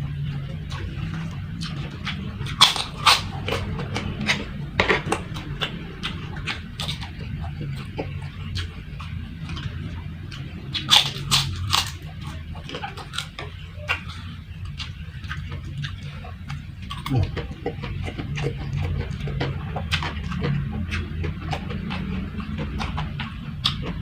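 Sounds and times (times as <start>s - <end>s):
chewing crispy crackers: 0.0s - 24.0s
low steady hum: 0.0s - 24.0s.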